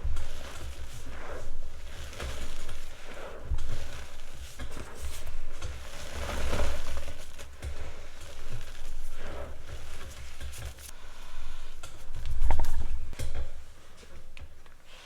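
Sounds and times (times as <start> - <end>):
chalk crumbling and crunching: 0.2 - 11.1.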